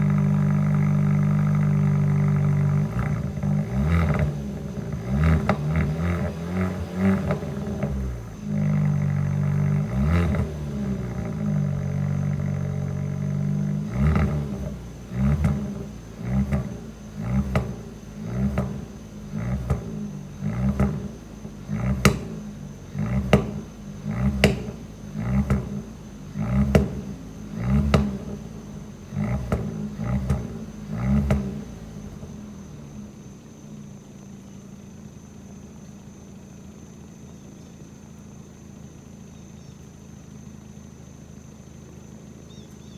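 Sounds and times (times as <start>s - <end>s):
exhaust pops and bangs: 0.0s - 32.9s
car engine revving: 0.0s - 37.2s
car engine idling: 0.0s - 42.9s.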